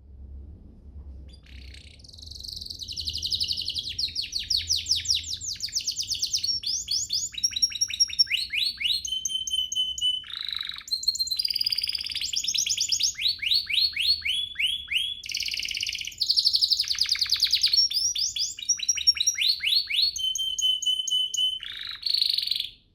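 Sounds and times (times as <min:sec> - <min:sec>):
canary singing trills and whistles: 0:01.3 - 0:22.9.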